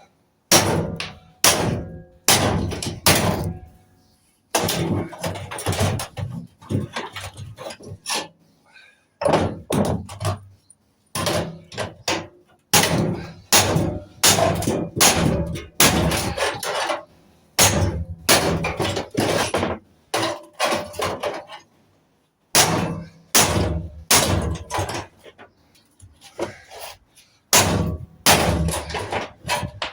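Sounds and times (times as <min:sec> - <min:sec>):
hammer striking scrap metal: 0:00.5 - 0:03.8, 0:04.6 - 0:08.3, 0:09.2 - 0:10.4, 0:11.2 - 0:21.6, 0:22.6 - 0:25.2, 0:27.5 - 0:29.9.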